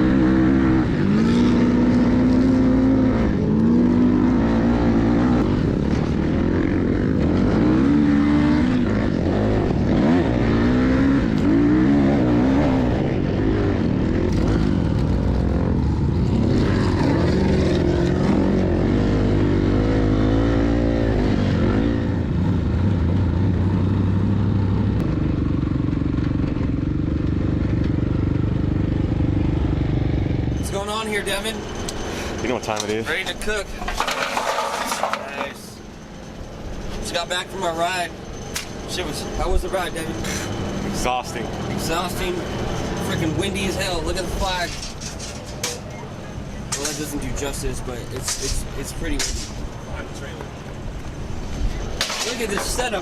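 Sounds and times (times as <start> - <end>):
off-road vehicle engine revving: 0.0 - 35.8.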